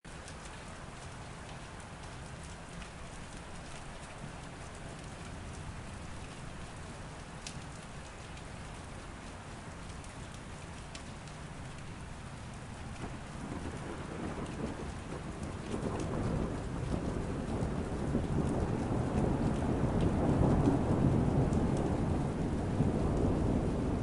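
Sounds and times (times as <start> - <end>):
raindrops ticking: 0.1 - 24.0
steady rainfall hiss: 0.1 - 24.0.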